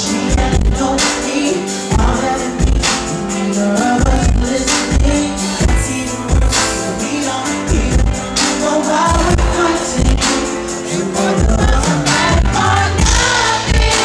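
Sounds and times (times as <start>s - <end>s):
person singing: 0.0s - 14.0s.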